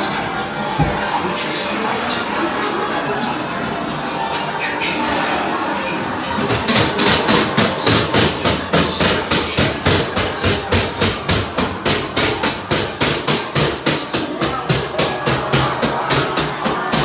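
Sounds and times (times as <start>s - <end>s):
ride mechanism clacking: 3.6s - 17.0s.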